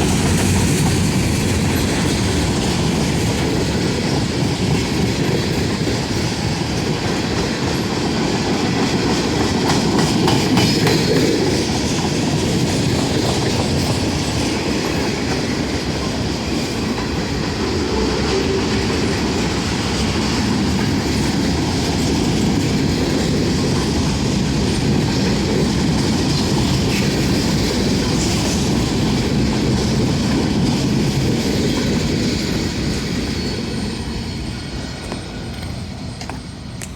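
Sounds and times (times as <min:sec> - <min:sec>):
train rumble: 0:00.0 - 0:36.9
train wheels clicking over rail joints: 0:00.0 - 0:36.9
wheel squeal: 0:32.4 - 0:36.9.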